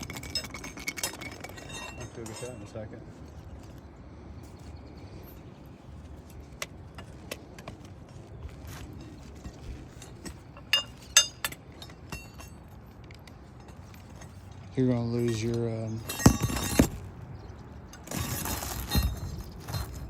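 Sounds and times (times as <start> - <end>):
small metal objects clinking: 0.0 - 3.8
sharp metallic knocks: 15.0 - 17.1.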